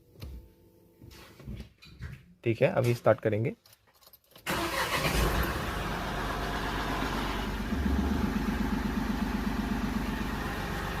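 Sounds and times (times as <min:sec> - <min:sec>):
diesel engine idling: 0:04.5 - 0:11.0.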